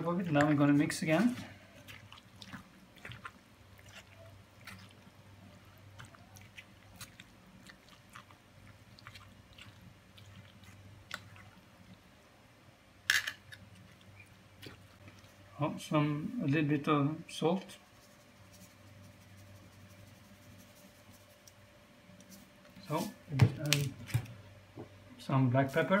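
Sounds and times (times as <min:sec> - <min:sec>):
wet squelching of stirred salad: 0:00.2 - 0:12.1, 0:13.6 - 0:15.5.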